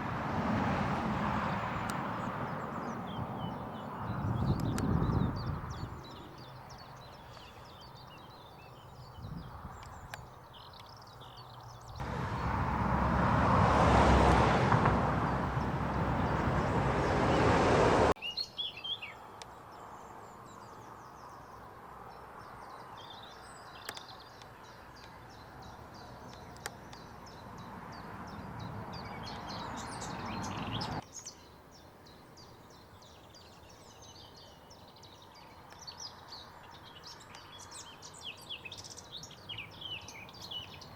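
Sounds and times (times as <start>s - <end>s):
small birds chirping: 1.7s - 12.6s, 15.3s - 40.9s
loud rushing noise: 12.0s - 18.2s.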